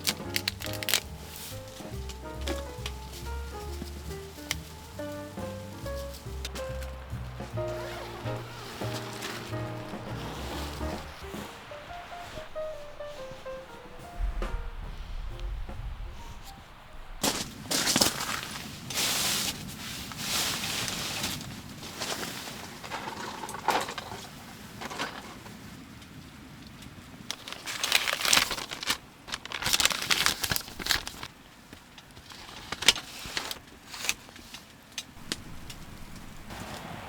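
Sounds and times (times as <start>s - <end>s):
rustling and crinkling: 0.0s - 37.0s.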